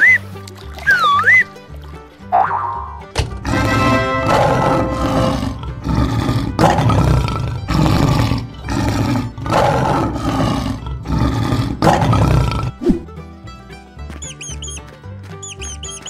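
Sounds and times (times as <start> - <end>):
lion roaring: 3.4 - 12.8.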